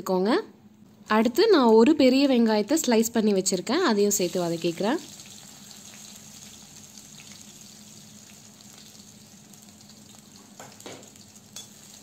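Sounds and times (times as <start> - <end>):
onions sizzling in hot oil: 4.1 - 12.0.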